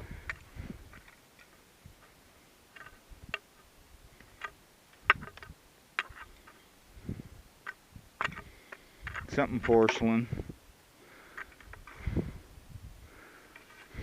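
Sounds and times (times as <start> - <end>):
knocks and clicks in debris: 4.3 - 6.6, 7.6 - 10.0.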